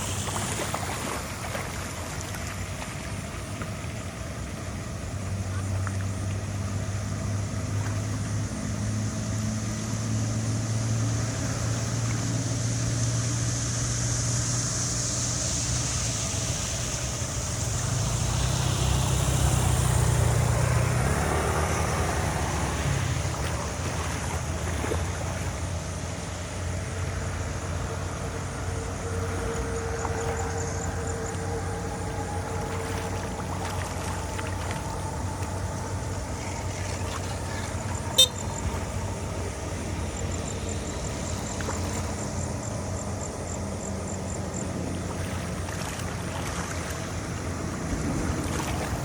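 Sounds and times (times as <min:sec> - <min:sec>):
rushing hissing noise: 0:00.0 - 0:01.4, 0:10.8 - 0:20.3
engine humming: 0:00.0 - 0:49.0.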